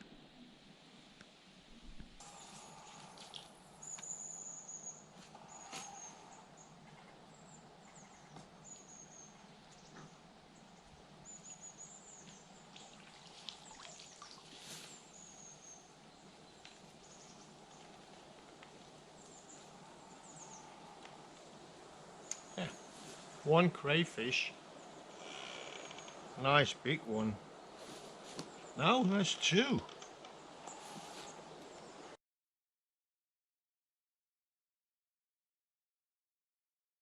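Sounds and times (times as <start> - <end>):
quiet steady hiss: 0.0 - 32.2
faint high-pitched bird calls: 2.2 - 10.2.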